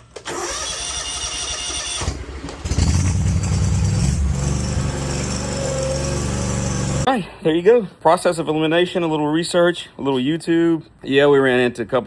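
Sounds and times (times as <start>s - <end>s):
starter motor cranking: 0.1s - 4.2s
mower engine running: 2.7s - 7.1s.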